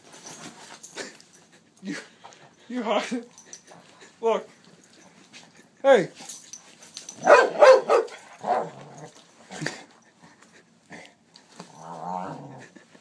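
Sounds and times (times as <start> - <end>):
dog barking: 7.2 - 8.8
dog growling: 8.4 - 9.8, 11.6 - 12.8.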